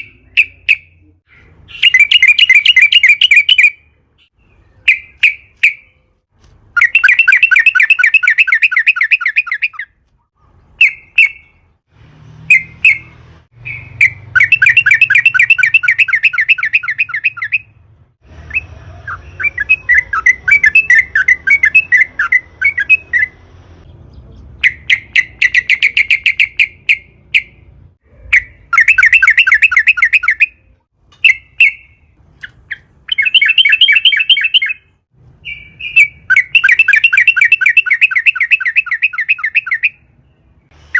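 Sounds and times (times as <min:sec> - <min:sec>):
bird chattering: 0:00.0 - 0:03.8, 0:24.3 - 0:27.6, 0:31.2 - 0:40.0
bird singing fast rolling trills: 0:00.0 - 0:05.9, 0:06.8 - 0:09.9, 0:12.5 - 0:17.7, 0:18.4 - 0:27.1, 0:28.3 - 0:30.6, 0:31.2 - 0:40.8.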